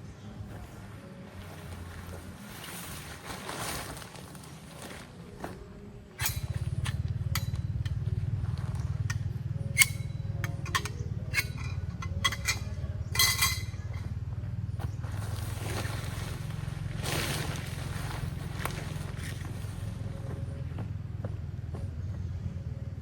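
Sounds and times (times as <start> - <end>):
low mechanical hum: 0.0 - 23.0
cookware clinking: 6.2 - 8.0, 9.0 - 14.1.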